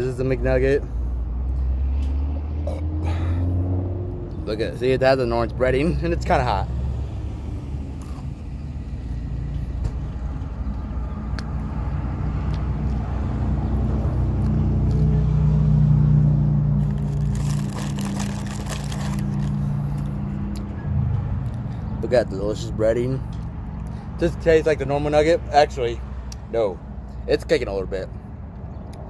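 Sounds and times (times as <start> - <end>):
traffic rumble: 0.0 - 29.0
vehicle engine running: 13.7 - 21.9.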